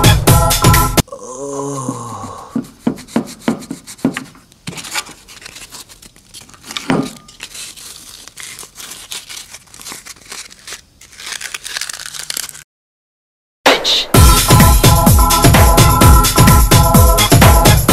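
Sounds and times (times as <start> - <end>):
plastic peeling and crinkling: 4.5 - 12.7.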